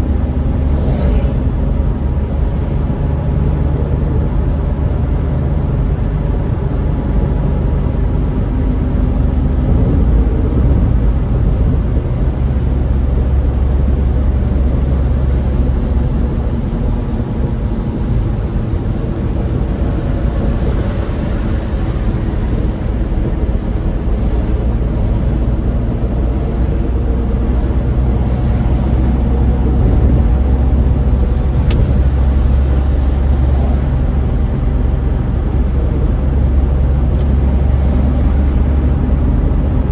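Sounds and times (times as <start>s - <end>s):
car engine and road rumble: 0.0s - 39.9s
sharp click: 31.6s - 31.9s.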